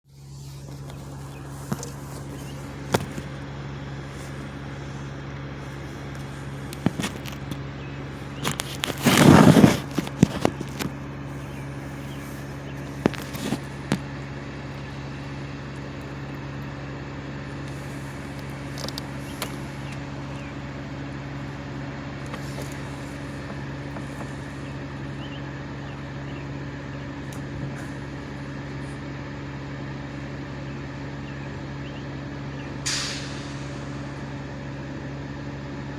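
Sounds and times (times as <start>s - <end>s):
engine running at high idle: 0.1s - 35.9s
loud noisy burst: 32.8s - 34.8s.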